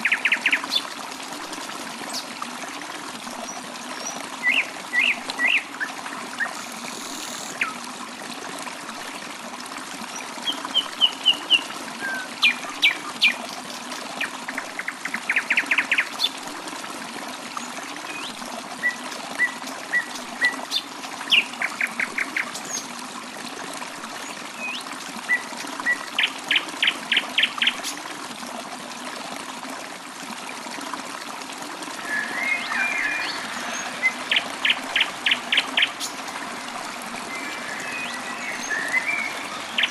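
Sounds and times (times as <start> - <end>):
trickle of running water: 0.0 - 39.9
songbirds chirping: 32.0 - 39.9.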